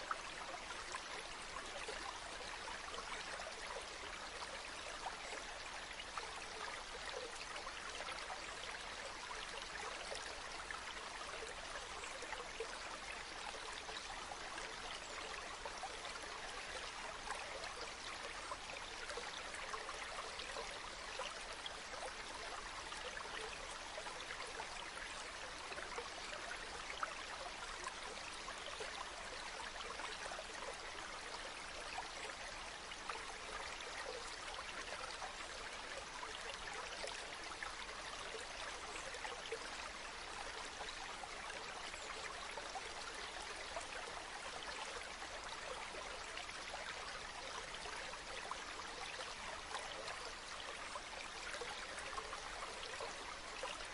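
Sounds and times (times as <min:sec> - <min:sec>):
stream trickling and babbling: 0:00.0 - 0:53.9.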